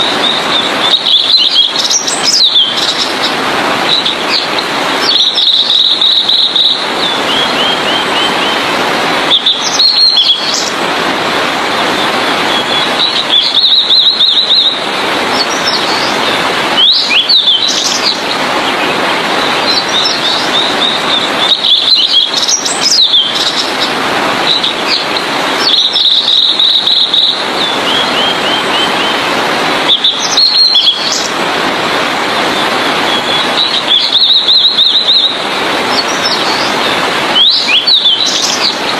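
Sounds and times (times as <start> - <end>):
bird singing trilled notes: 0.0 - 8.6, 9.3 - 10.7, 12.0 - 23.9, 24.5 - 29.2, 29.9 - 31.3, 32.5 - 38.9
steady loud hiss: 0.0 - 38.9.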